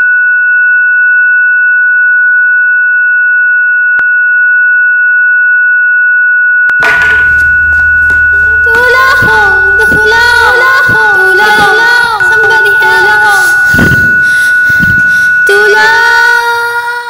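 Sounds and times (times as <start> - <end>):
high-pitched ringing tone: 0.0 - 17.0
background noise: 6.8 - 17.0.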